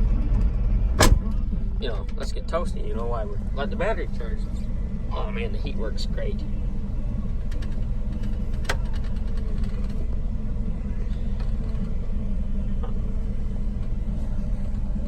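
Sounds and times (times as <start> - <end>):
heater fan running: 0.0 - 15.0
truck engine idling: 0.0 - 15.0.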